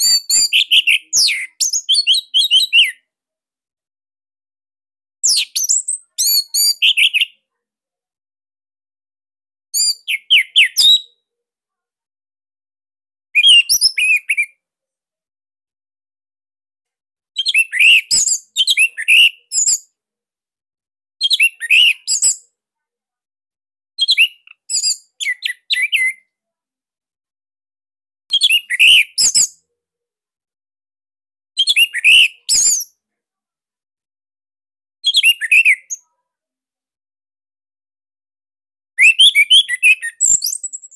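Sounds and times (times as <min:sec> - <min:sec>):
thrush singing whistled notes: 0:39.0 - 0:40.8.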